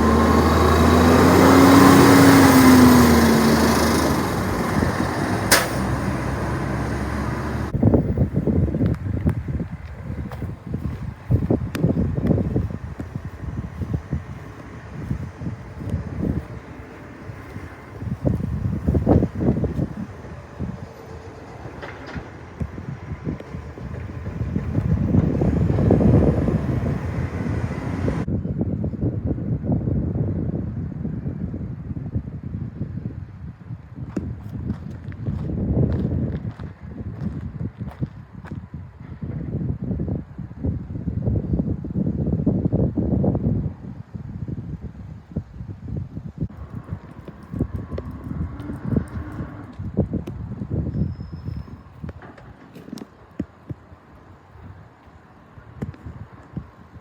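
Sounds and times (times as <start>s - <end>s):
garbage truck engine running: 0.0s - 28.3s, 46.5s - 56.9s
sharp click: 5.5s - 5.9s.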